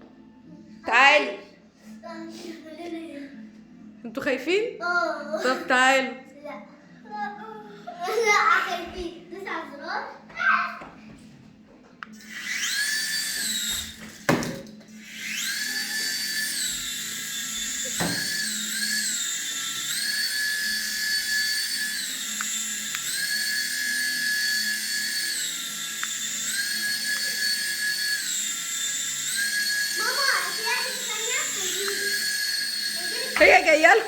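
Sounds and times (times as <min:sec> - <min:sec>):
toy helicopter rotor whining: 0:12.1 - 0:34.0.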